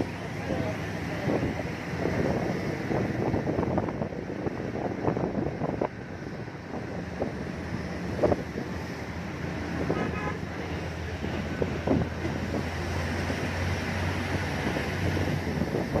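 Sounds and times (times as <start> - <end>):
vehicle running: 0.0 - 16.0
wind buffeting microphone: 0.0 - 16.0
short horn toot: 9.9 - 10.4.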